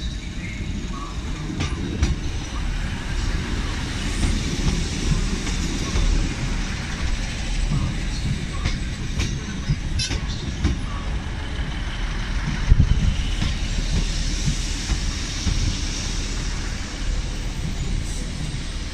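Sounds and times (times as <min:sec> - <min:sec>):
train engine and wheels rumbling: 0:00.0 - 0:18.9.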